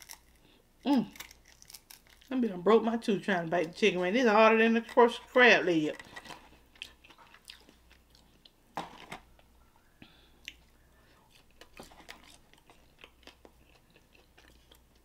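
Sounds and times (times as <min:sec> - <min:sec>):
person chewing crispy food: 0:00.0 - 0:02.3, 0:06.0 - 0:09.4, 0:10.4 - 0:15.0.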